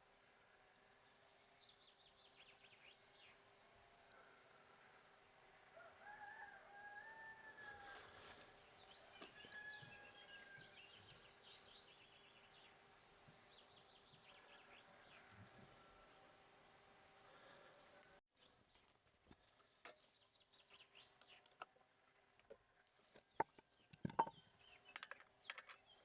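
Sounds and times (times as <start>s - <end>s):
small birds chirping: 0.7s - 4.4s, 7.8s - 16.5s
faint rooster crowing: 5.5s - 11.4s, 14.2s - 16.4s.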